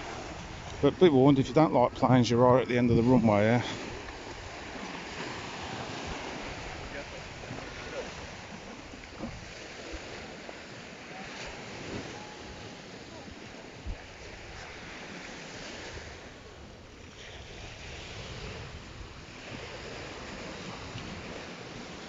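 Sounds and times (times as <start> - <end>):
waves washing onto beach: 0.0 - 22.0
wind buffeting microphone: 0.0 - 22.0.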